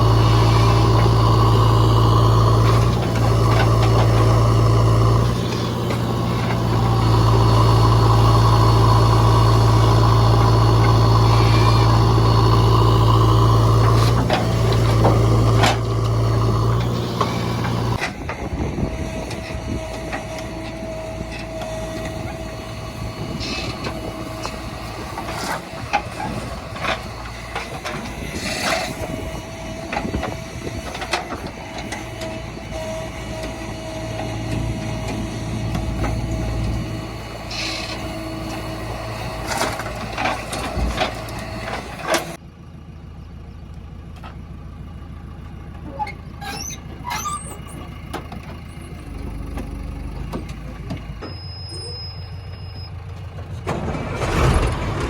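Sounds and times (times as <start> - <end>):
diesel engine running under work: 0.0 - 55.0
knocks and clanks: 53.3 - 55.0.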